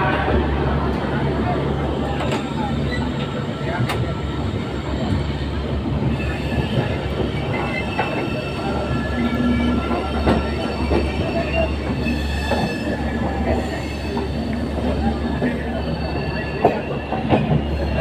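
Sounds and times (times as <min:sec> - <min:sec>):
train wheels rumbling on rails: 0:00.0 - 0:18.0
high wheel squeals: 0:06.0 - 0:18.0.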